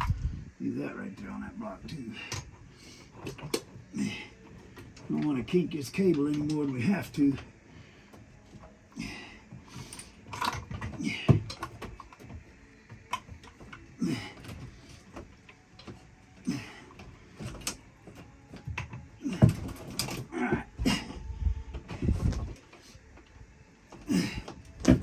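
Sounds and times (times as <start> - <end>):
hand tools knocking and clunking: 8.5 - 21.2.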